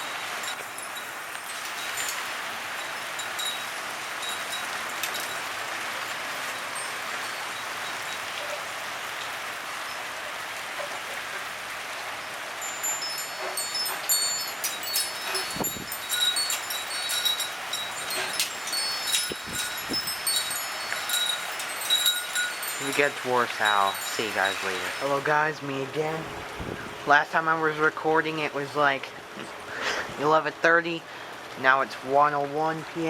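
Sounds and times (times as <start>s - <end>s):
wind chime jangling: 0.0s - 8.6s, 12.6s - 25.3s
heavy rain: 0.0s - 33.0s
wind: 0.0s - 33.0s.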